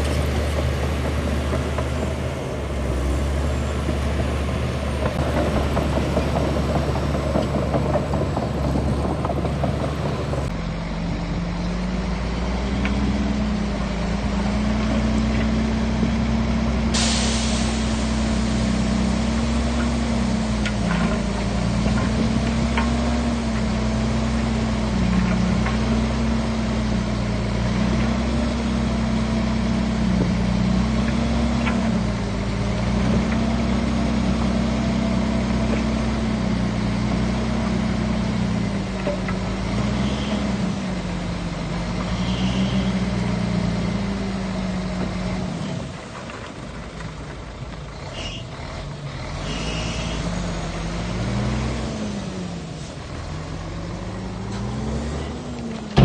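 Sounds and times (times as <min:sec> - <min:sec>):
bulldozer diesel engine: 0:00.0 - 0:56.0
short high squeaks: 0:42.1 - 0:43.0, 0:48.1 - 0:48.5, 0:49.4 - 0:50.4.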